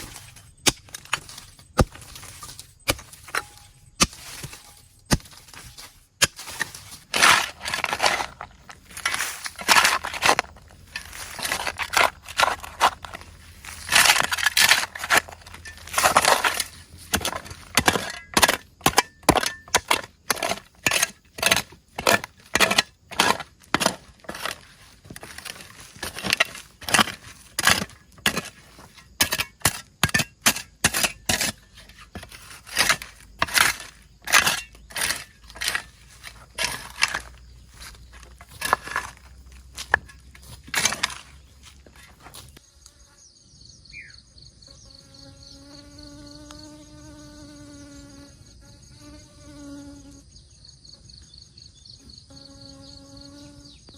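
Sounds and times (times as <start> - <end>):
wood cracking and knocking: 0.0 - 42.6
wood crunching: 0.0 - 42.6.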